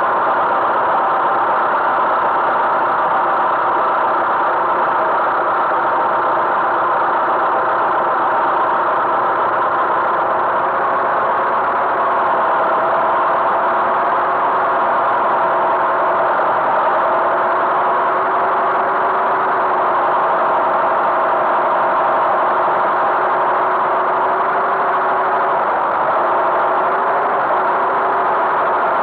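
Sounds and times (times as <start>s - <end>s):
tractor engine running: 0.1s - 29.0s.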